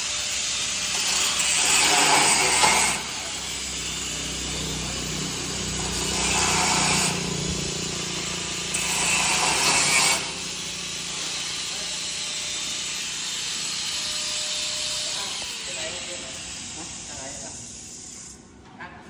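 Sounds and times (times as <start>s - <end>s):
power tool working metal: 0.0s - 18.5s
steady hum: 3.3s - 8.7s.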